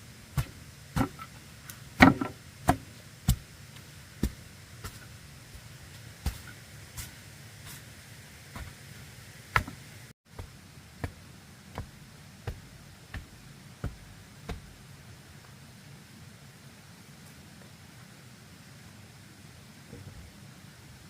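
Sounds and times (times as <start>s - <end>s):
hand tool knocking bamboo: 0.4s - 1.3s, 2.0s - 3.5s.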